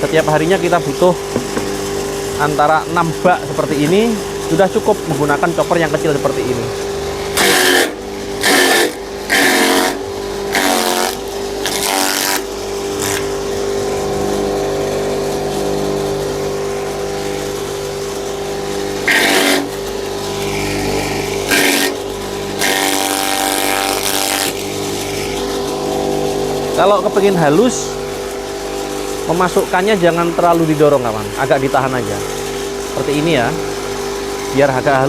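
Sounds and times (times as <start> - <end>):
electric motor humming: 0.0 - 35.0.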